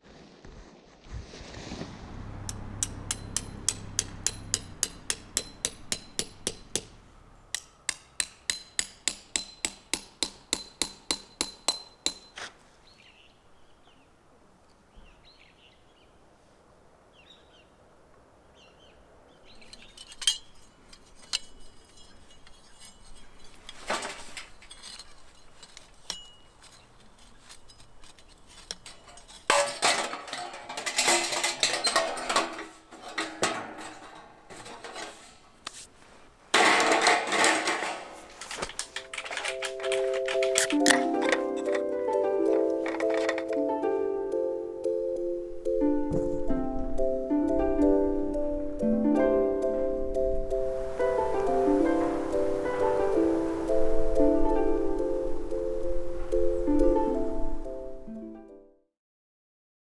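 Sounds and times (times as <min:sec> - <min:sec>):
rhythmic metallic clinking: 0:02.4 - 0:12.1, 0:36.6 - 0:43.6
burst of clattering: 0:19.7 - 0:35.8, 0:36.5 - 0:41.9.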